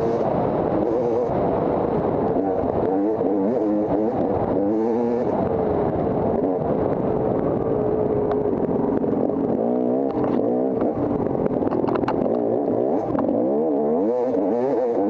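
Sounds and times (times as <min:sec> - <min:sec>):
dirt bike engine revving: 0:00.0 - 0:07.0, 0:08.4 - 0:15.0.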